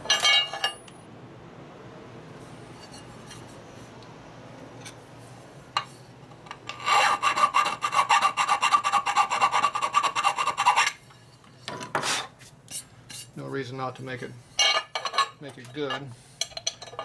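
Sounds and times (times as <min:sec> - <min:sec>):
hand file rasping on metal: 0:06.7 - 0:11.0.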